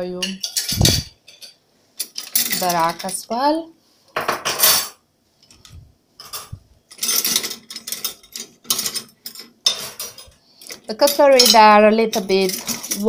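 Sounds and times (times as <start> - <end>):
metal cutlery clattering: 0.3 - 3.2, 4.4 - 5.0, 6.2 - 13.0.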